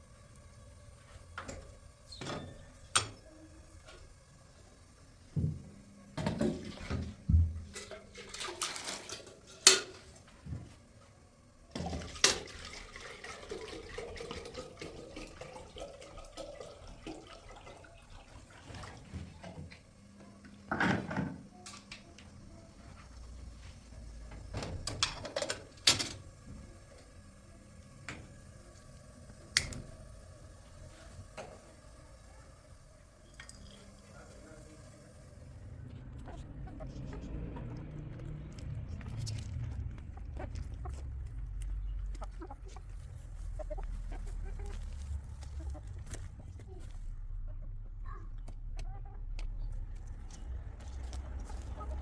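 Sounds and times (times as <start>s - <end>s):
running water: 0.0s - 11.0s, 11.6s - 47.0s
dishes and pots clinking: 6.2s - 10.2s.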